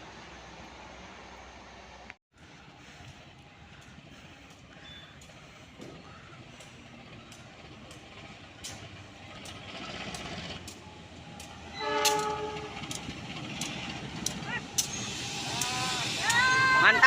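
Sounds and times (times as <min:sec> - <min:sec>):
train rumble: 0:00.0 - 0:17.0
wheels clicking over rail joints: 0:02.6 - 0:17.0
train horn blast: 0:11.7 - 0:13.0.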